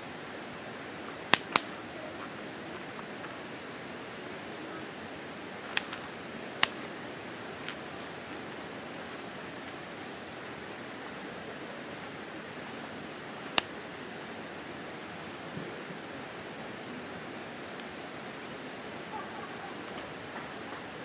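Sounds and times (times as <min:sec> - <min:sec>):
campfire hiss: 0:00.1 - 0:20.7
wood crackles and pops: 0:01.4 - 0:01.7.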